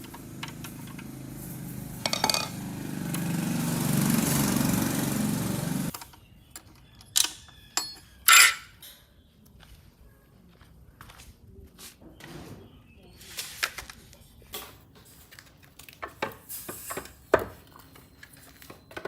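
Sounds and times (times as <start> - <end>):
power tool motor humming: 0.0 - 5.9
sharp metallic clinks: 7.2 - 8.8.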